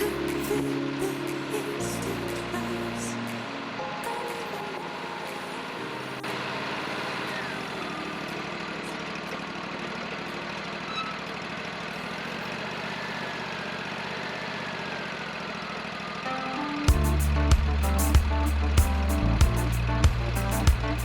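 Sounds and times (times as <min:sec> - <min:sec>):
sawmill engine running: 0:05.5 - 0:21.0.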